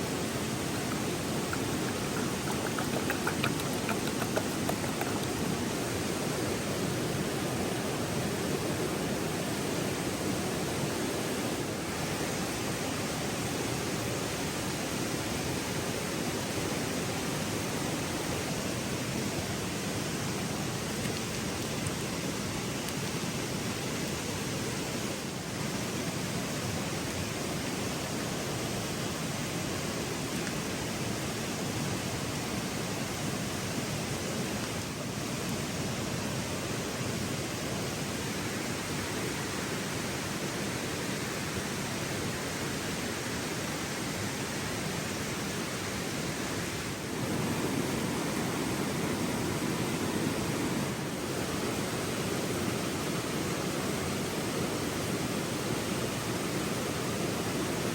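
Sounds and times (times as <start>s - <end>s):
river water rushing: 0.0s - 19.0s, 28.0s - 57.9s
faint ticks: 0.8s - 5.4s.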